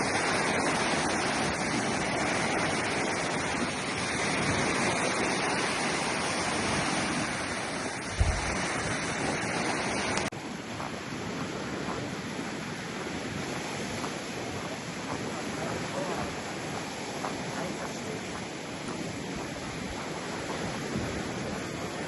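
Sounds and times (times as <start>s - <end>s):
ocean surf rushing: 0.0s - 22.0s
wind on microphone: 0.0s - 22.0s
low thump: 8.2s - 8.5s.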